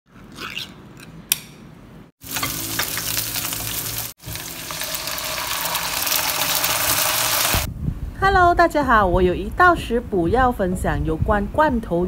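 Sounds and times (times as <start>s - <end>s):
onion sizzling in hot oil: 2.2s - 7.7s.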